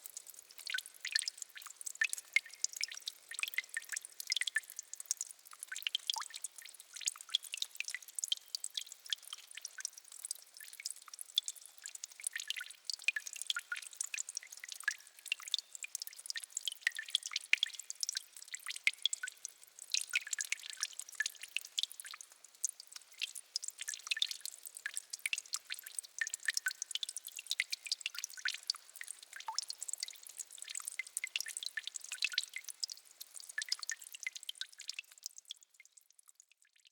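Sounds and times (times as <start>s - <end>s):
water dripping: 0.0s - 36.9s.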